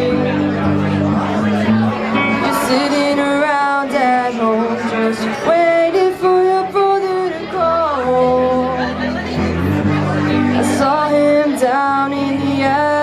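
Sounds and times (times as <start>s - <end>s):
live rock band playing: 0.0s - 6.4s
sliding lead melody: 0.0s - 6.4s.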